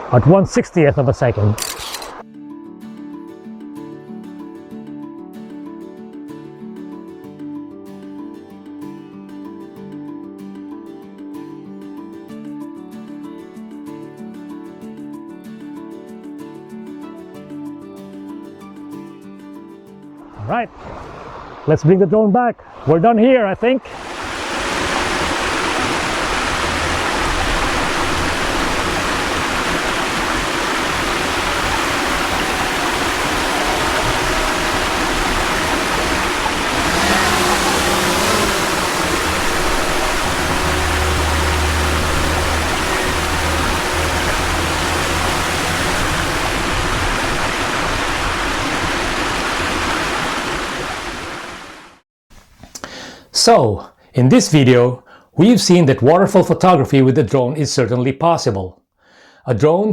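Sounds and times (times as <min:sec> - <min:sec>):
waterfall rushing water: 0:23.9 - 0:52.0.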